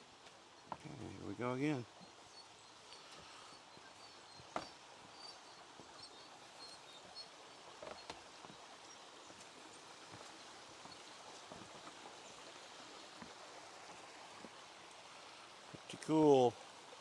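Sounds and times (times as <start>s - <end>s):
small birds chirping: 0.0s - 13.2s
creek running: 0.0s - 17.0s.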